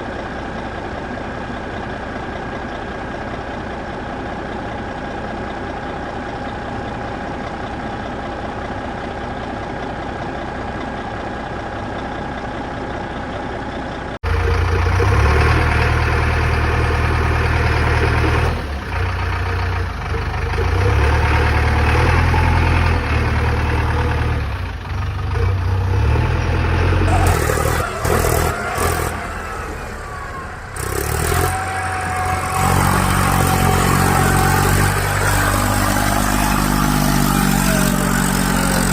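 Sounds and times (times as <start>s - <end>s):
steady engine hum: 0.0s - 38.9s
engine running and revving: 14.3s - 38.9s.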